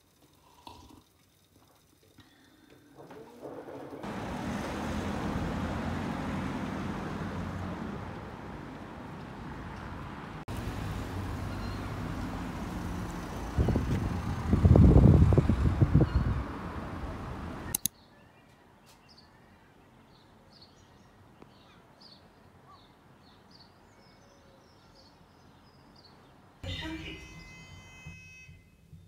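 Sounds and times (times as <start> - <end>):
road traffic: 3.6 - 18.0
wind buffeting microphone: 12.7 - 17.7.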